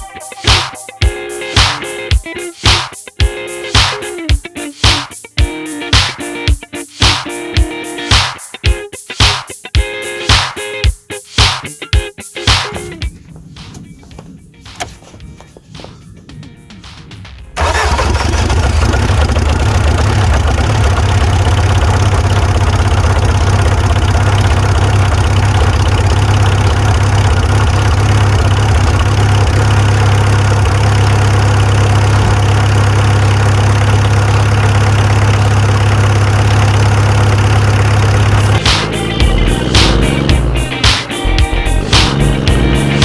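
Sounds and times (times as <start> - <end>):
vehicle engine idling: 17.6 - 43.0.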